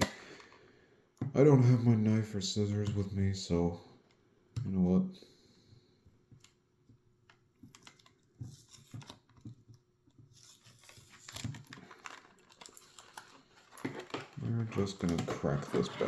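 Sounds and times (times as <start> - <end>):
plastic crinkling and tearing: 10.3 - 16.0
packaging clicks and taps: 10.4 - 16.0.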